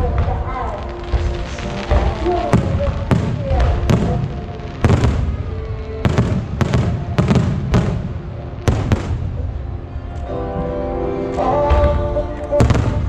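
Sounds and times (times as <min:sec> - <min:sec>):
firework shells bursting: 0:00.0 - 0:09.6
low rumble: 0:00.0 - 0:13.0
music: 0:00.0 - 0:13.0.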